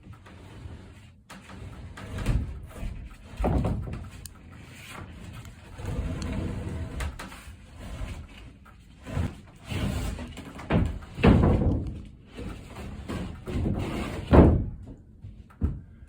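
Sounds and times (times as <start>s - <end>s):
board scraping: 0.2s - 14.7s
heavy wooden knocks: 1.7s - 4.2s, 9.0s - 15.0s, 15.6s - 16.0s.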